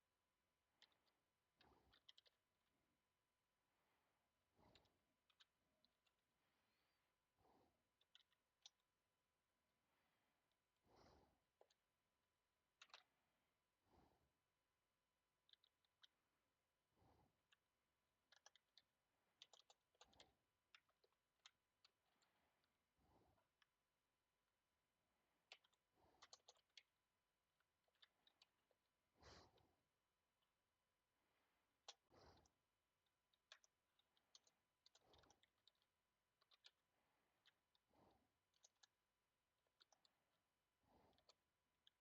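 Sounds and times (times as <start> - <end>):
soft breaths: 0.0 - 42.0.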